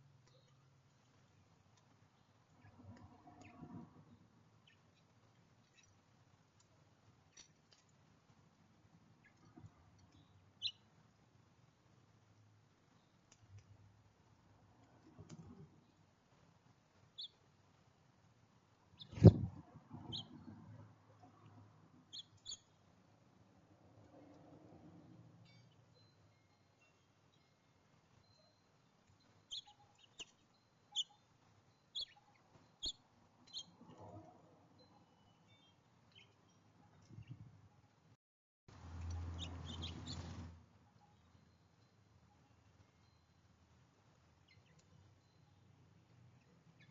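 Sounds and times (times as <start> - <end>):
small birds chirping: 0.1 - 8.0, 9.0 - 11.4, 16.9 - 17.8, 18.9 - 20.5, 22.0 - 23.0, 25.4 - 34.1, 34.8 - 37.6, 38.9 - 46.9.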